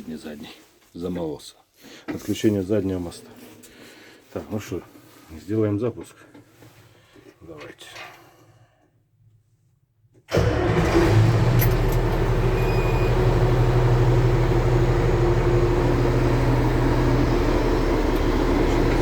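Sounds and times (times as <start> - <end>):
diesel engine starting and idling: 10.3 - 19.0.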